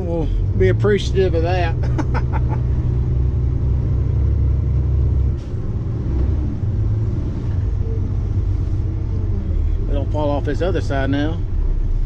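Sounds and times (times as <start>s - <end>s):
diesel truck engine rumbling: 0.0s - 12.0s.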